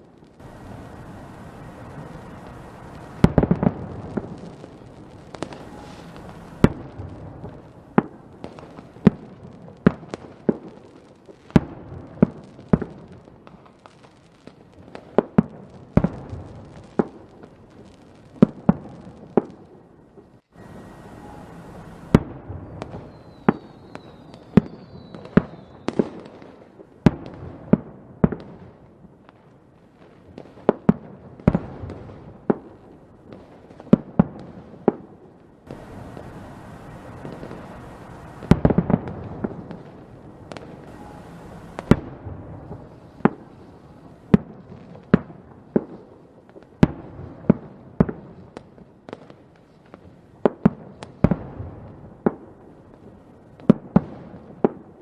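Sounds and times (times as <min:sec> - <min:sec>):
rumbling crackle: 0:00.0 - 0:09.6, 0:35.7 - 0:44.4
fireworks bangs: 0:00.0 - 0:19.8, 0:20.5 - 0:55.0
high whistles of fireworks: 0:00.0 - 0:55.0.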